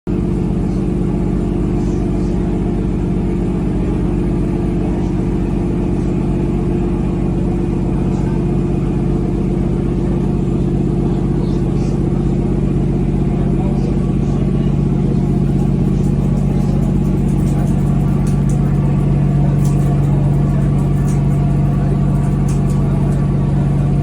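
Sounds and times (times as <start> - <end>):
boat engine droning: 0.1 - 24.0.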